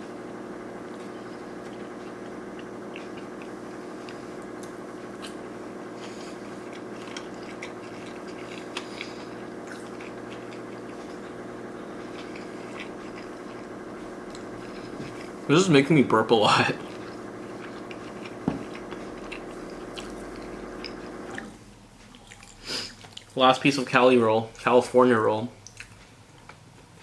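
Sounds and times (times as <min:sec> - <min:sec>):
low electrical hum: 0:00.0 - 0:27.0
wet chewing mouth clicks: 0:01.6 - 0:05.4, 0:06.0 - 0:15.4, 0:16.8 - 0:23.4, 0:25.6 - 0:26.6.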